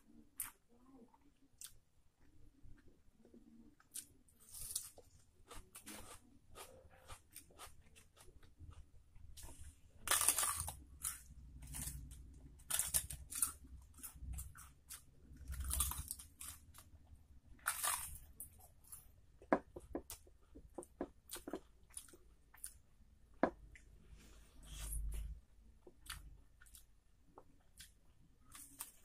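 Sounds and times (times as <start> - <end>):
crunching crisp papad: 4.0 - 16.8.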